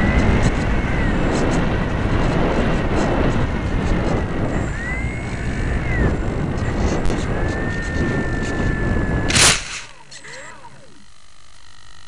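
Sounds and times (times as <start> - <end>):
faint thin whine: 0.0 - 12.0
rough rushing airflow: 1.3 - 10.8.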